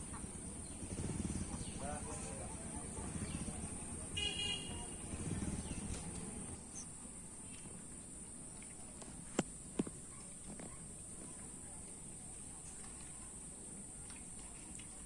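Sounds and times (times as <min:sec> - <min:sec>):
outdoor background noise: 0:00.0 - 0:15.0
horn toot: 0:04.1 - 0:05.5.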